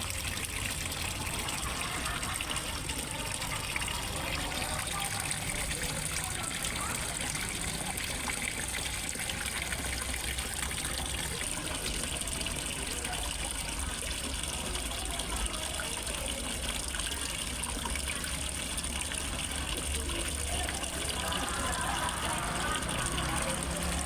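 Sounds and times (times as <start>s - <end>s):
small waterfall splashing: 0.0s - 24.0s.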